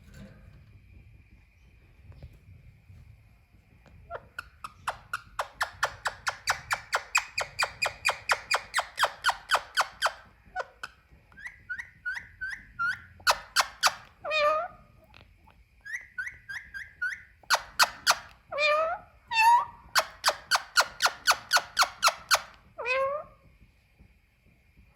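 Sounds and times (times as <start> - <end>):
parakeet calling shrilly: 4.6 - 10.2, 11.4 - 14.7, 15.9 - 23.2.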